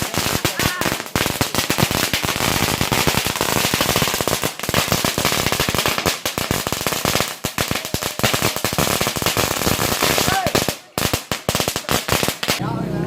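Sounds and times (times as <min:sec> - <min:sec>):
firecrackers banging: 0:00.0 - 0:12.6.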